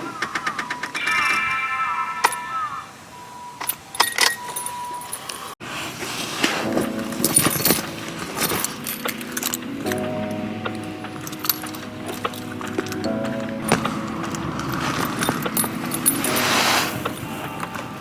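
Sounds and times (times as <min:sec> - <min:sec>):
keys jangling: 0:06.8 - 0:17.0.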